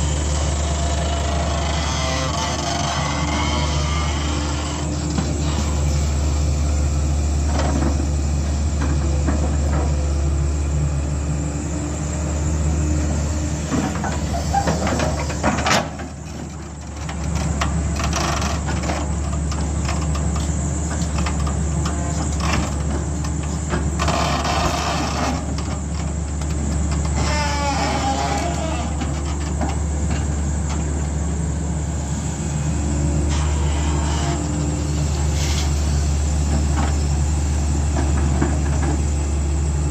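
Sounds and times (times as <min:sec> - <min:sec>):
diesel engine humming: 0:00.0 - 0:18.0, 0:28.1 - 0:39.9.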